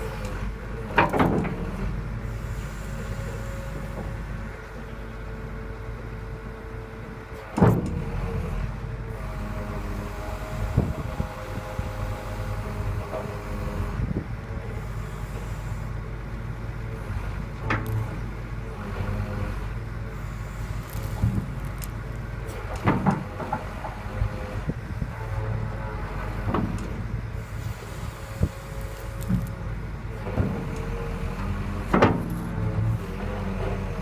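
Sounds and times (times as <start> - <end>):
excavator diesel engine running: 0.0 - 34.0
sharp knocks and clanks of machine: 0.9 - 1.8, 7.5 - 8.2, 22.5 - 24.1, 26.4 - 27.0, 31.8 - 32.8.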